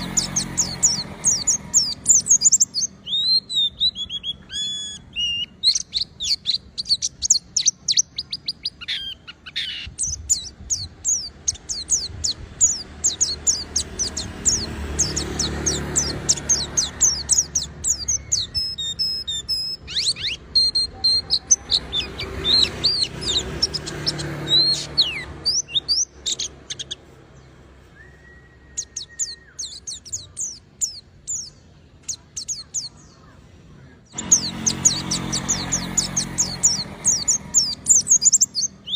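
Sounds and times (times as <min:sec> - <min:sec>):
bird chirping and twittering: 0:00.0 - 0:38.9.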